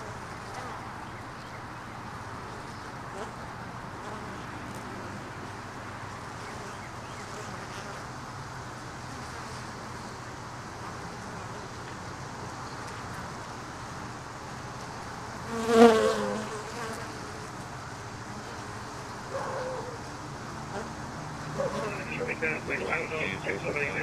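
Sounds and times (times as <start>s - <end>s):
bees buzzing: 15.1s - 17.6s, 18.2s - 24.0s.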